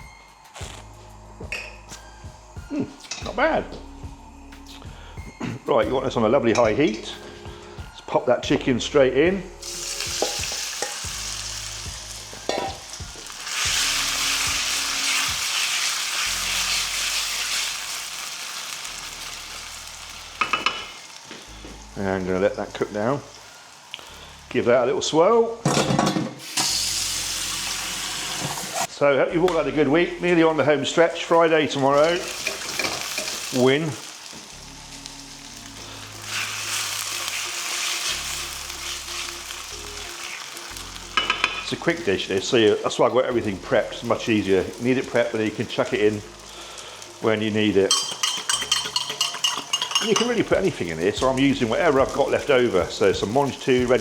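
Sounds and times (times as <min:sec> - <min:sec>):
chicken sizzling in hot oil: 0:09.6 - 0:25.1, 0:26.4 - 0:28.9, 0:30.3 - 0:54.0.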